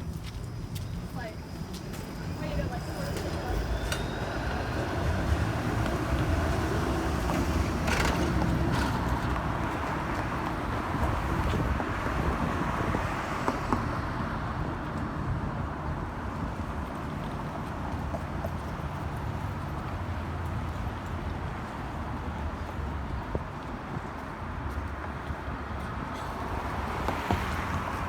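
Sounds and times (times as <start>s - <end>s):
wind rumbling on microphone: 0.0s - 17.7s
street traffic going by: 0.0s - 28.0s
vehicle passing: 2.0s - 14.3s.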